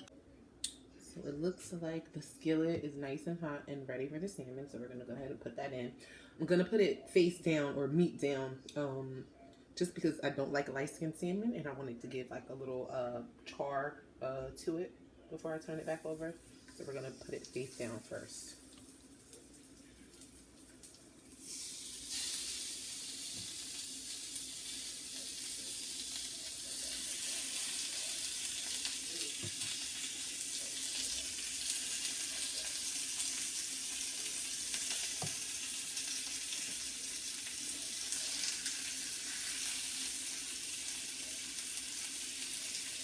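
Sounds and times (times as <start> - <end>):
fish sizzling in a skillet: 15.6 - 43.0.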